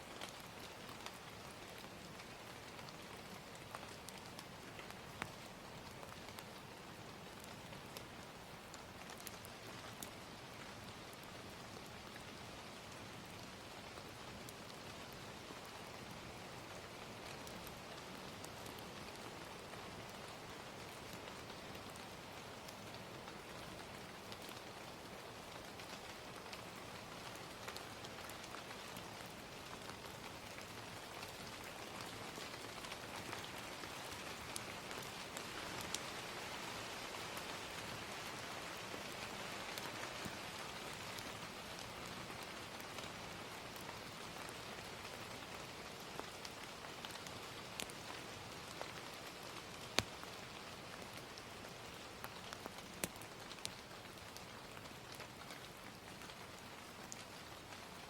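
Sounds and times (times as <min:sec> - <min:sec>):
gentle rain: 0:00.0 - 0:58.0
wood fire crackling and popping: 0:07.3 - 0:11.3, 0:46.0 - 0:58.0.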